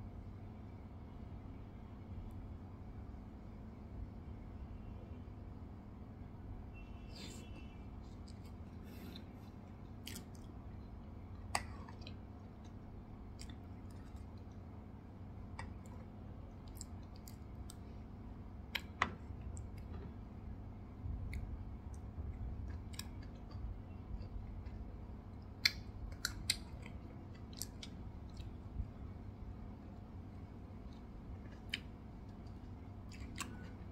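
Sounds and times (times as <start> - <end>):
chewing soft cake: 7.0 - 33.9.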